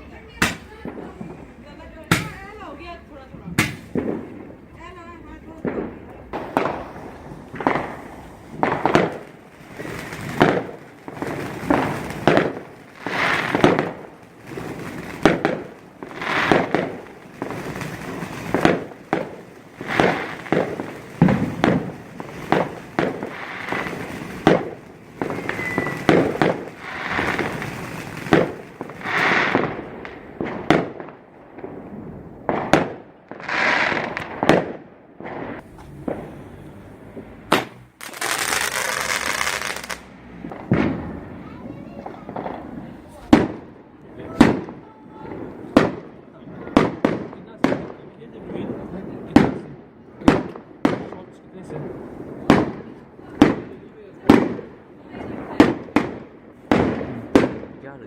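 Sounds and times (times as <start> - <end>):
fireworks bursting with bangs: 0.0 - 58.0
rising firework whistle: 25.2 - 28.1, 35.3 - 41.3.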